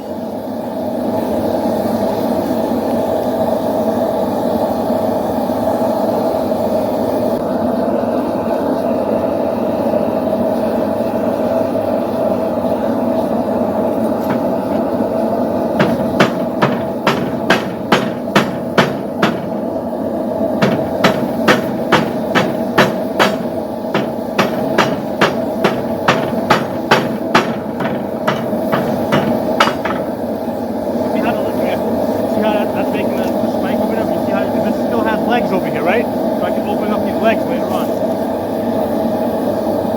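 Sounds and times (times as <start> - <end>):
hammer striking hot steel on anvil: 14.0 - 35.6.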